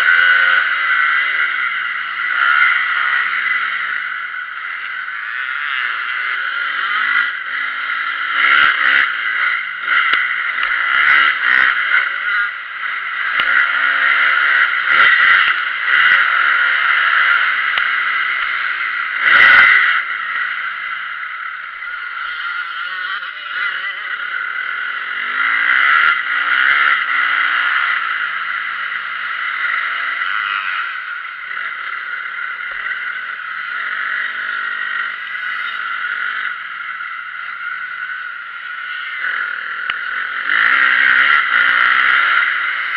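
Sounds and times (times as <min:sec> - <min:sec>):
dirt bike engines revving: 0:00.0 - 0:42.9.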